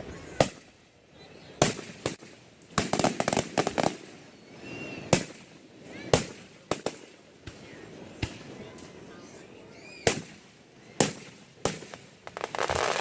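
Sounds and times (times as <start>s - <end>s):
fireworks crackling pops: 0.0s - 0.8s, 1.6s - 4.2s, 5.0s - 9.0s, 9.9s - 13.0s
fireworks bangs: 1.6s - 4.2s, 11.0s - 13.0s.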